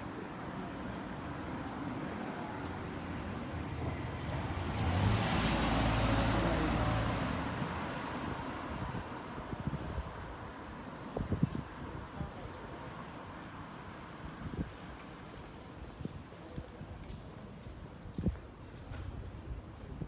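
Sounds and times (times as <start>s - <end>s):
motor vehicle driving past: 4.0s - 7.8s.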